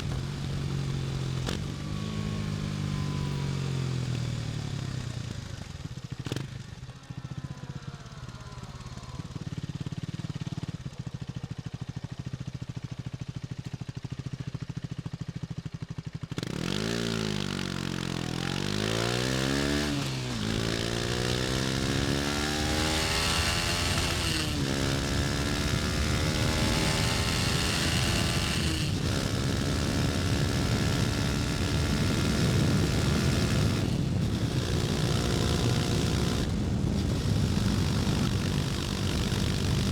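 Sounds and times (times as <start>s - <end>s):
motorcycle engine revving: 0.0s - 39.9s
rushing wind noise: 20.3s - 39.9s.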